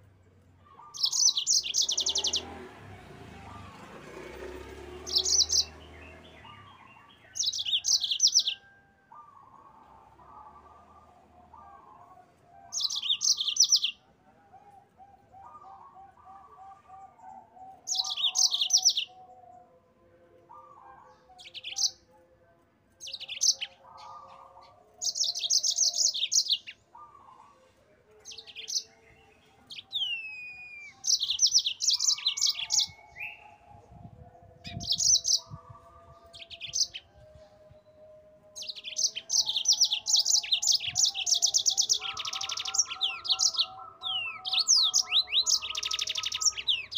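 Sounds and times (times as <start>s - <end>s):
canary singing fast high trills: 0.8s - 10.6s, 12.7s - 14.0s, 17.7s - 19.2s, 23.0s - 27.1s, 29.7s - 33.6s, 38.6s - 46.9s.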